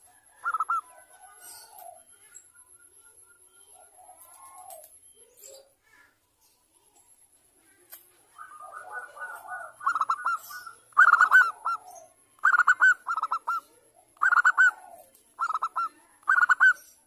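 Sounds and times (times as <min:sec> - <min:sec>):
dove cooing: 0:00.0 - 0:02.3, 0:03.6 - 0:05.7, 0:08.2 - 0:17.0
soft bird trill: 0:00.0 - 0:07.1, 0:07.7 - 0:17.0.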